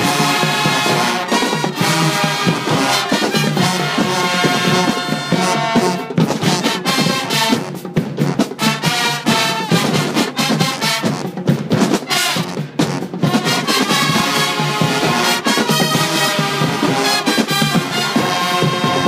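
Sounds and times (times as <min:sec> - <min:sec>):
brass horns: 0:00.0 - 0:19.0
drums and percussion hits: 0:00.0 - 0:19.0.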